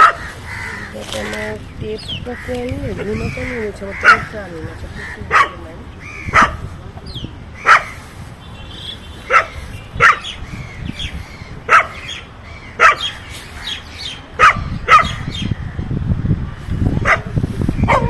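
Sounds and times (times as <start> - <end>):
dog barking: 0.0 - 0.2, 4.0 - 4.3, 5.3 - 5.6, 6.3 - 6.7, 7.6 - 8.0, 9.3 - 10.4, 11.7 - 12.0, 12.8 - 13.1, 14.4 - 15.2, 17.0 - 18.0.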